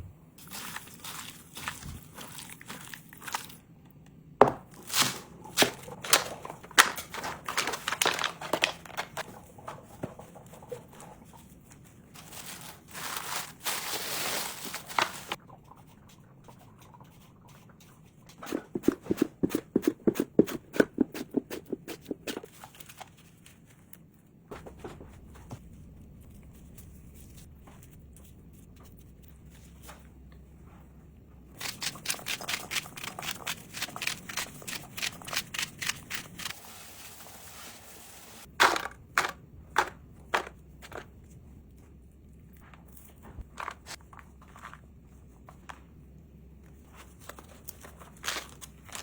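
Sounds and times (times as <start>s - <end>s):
crinkling: 4.7s - 15.4s, 18.4s - 30.8s, 46.6s - 49.0s
rustling: 6.0s - 15.4s.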